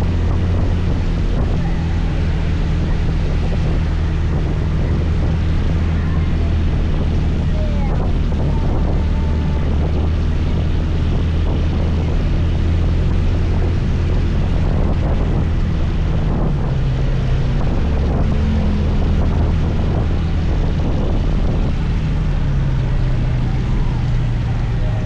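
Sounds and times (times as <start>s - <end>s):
wind rushing over microphone: 0.0s - 25.0s.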